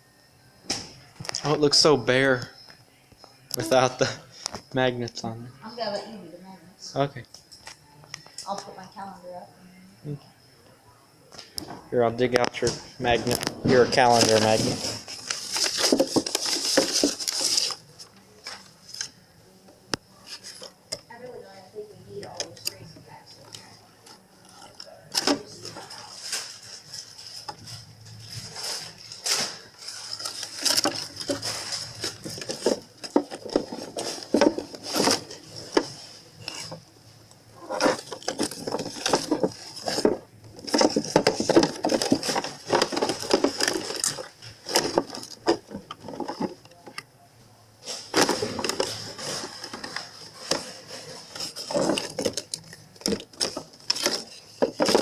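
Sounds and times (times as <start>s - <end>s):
containers clattering on shelves: 28.6s - 36.8s, 37.6s - 46.7s, 48.0s - 55.0s.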